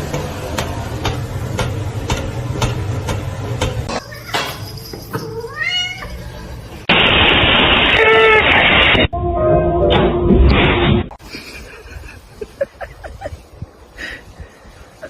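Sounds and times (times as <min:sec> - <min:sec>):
cat meowing: 0:05.3 - 0:06.5.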